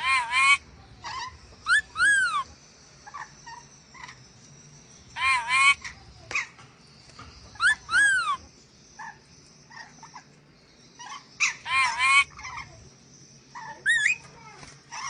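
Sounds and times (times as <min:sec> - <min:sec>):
parrot squawking: 0:00.0 - 0:02.5, 0:05.2 - 0:06.5, 0:07.6 - 0:08.4, 0:11.0 - 0:12.8, 0:13.5 - 0:14.2.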